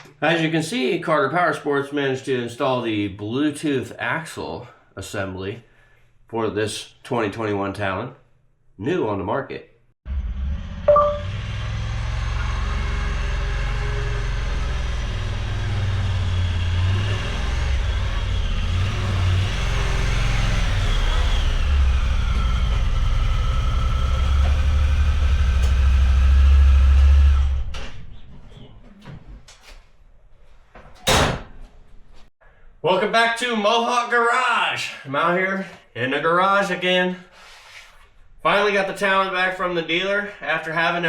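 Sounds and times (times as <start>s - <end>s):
side-by-side engine running: 10.9s - 27.7s.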